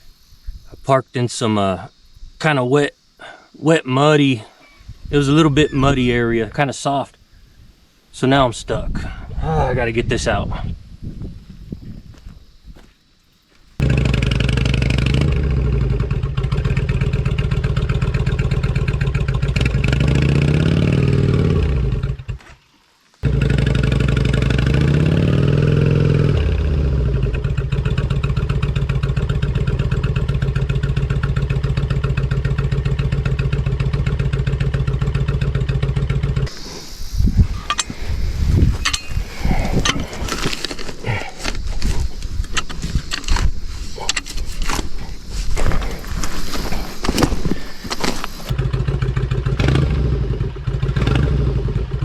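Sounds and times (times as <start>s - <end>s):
motorcycle engine revving: 13.8s - 22.4s, 23.2s - 46.3s, 47.0s - 52.0s.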